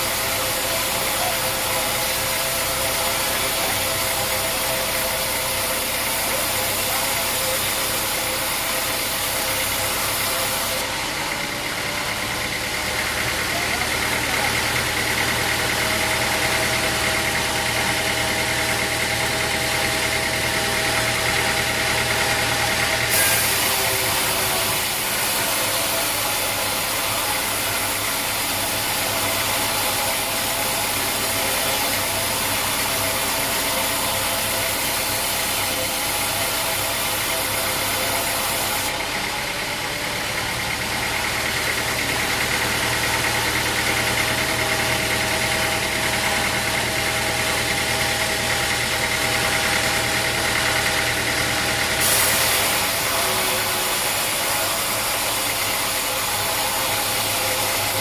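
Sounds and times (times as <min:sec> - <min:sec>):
saw cutting through log: 0:00.0 - 0:58.0
sawmill engine running: 0:00.0 - 0:58.0.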